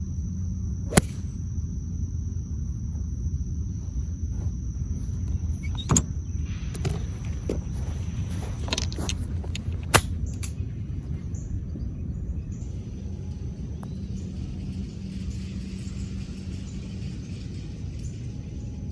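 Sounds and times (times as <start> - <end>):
steady low rumble: 0.0 - 18.9
golf club striking ball: 0.9 - 1.4, 5.1 - 10.8.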